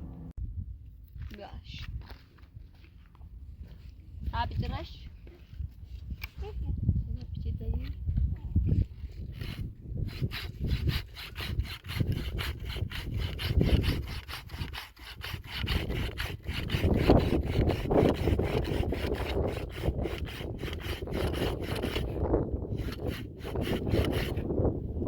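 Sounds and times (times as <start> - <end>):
rhythmic rasping sawing strokes: 9.3 - 24.5.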